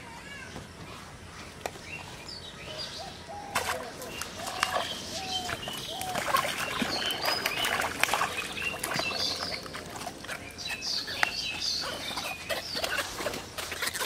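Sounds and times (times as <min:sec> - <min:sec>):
small birds chirping: 0:00.3 - 0:14.0
fish splashing in water: 0:03.5 - 0:14.0.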